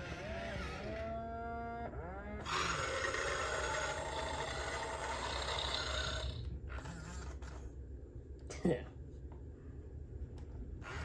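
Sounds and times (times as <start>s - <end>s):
toy dinosaur roar from speaker: 0.0s - 1.4s, 2.1s - 6.9s.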